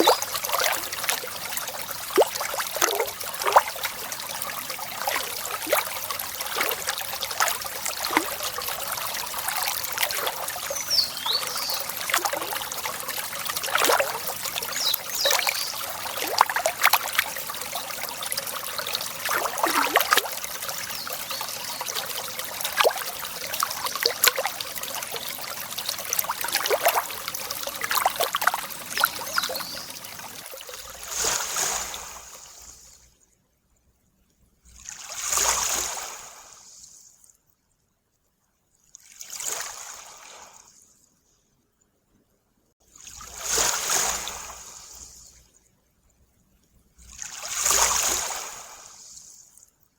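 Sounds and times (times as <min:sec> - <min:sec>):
water trickling and babbling: 0:00.0 - 0:33.1, 0:42.8 - 0:45.6, 0:46.8 - 0:49.2
birds chirping: 0:10.4 - 0:12.2, 0:14.0 - 0:15.9, 0:28.9 - 0:30.1.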